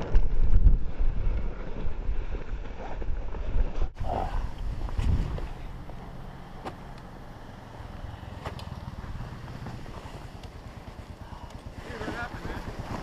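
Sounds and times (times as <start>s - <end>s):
motorcycle engine idling: 4.3s - 13.0s.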